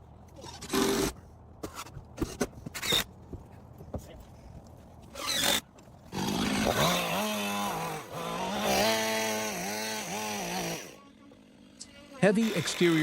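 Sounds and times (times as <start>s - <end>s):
chainsaw engine at high revs: 5.2s - 13.0s.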